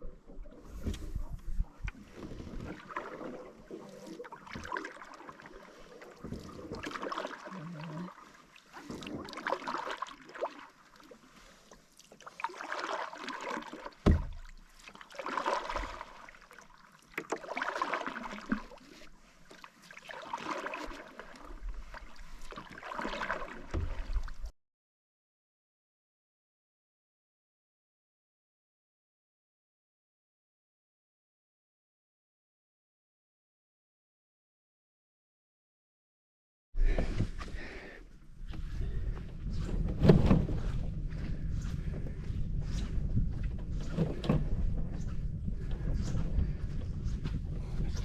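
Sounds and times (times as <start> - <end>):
paddle strokes in water: 0.0 - 24.5, 36.8 - 48.0.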